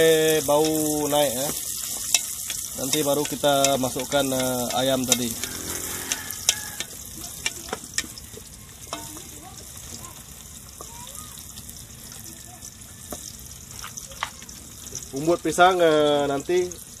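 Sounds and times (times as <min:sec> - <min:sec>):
food sizzling in hot oil: 0:00.0 - 0:17.0
wooden spatula knocking pot: 0:00.5 - 0:09.4.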